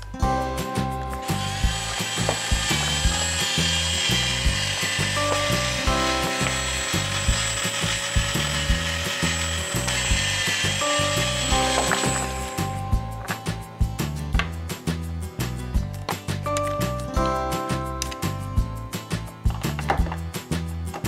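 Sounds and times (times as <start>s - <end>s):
background music: 0.0s - 21.0s
toy drill ratcheting: 1.2s - 12.8s.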